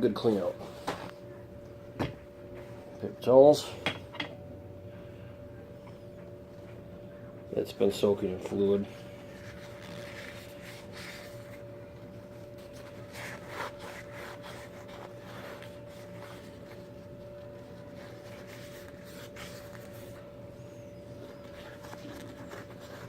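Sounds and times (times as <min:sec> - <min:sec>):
faint steady hum: 0:00.0 - 0:23.0
soft handling noises: 0:05.7 - 0:23.0
paper towel rubbing and wiping: 0:09.2 - 0:11.6, 0:12.6 - 0:17.0, 0:17.6 - 0:20.3, 0:21.2 - 0:23.0.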